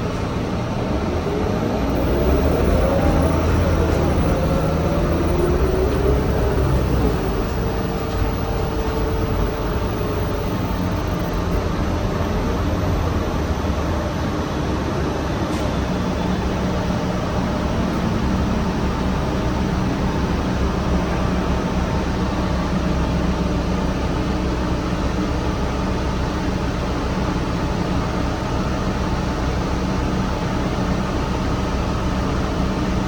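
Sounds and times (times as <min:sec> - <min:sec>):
drivetrain whine: 0:00.0 - 0:15.2
road noise: 0:00.0 - 0:25.0
bus engine rumble: 0:00.0 - 0:33.0.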